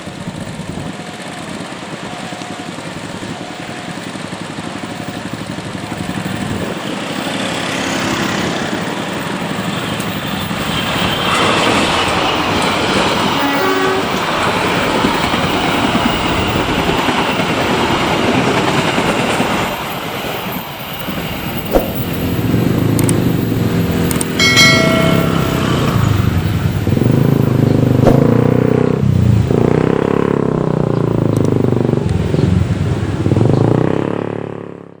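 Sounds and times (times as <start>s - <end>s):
passing train: 0.0s - 34.3s
vehicle engines running: 0.0s - 35.0s
brief high tone: 24.4s - 26.7s.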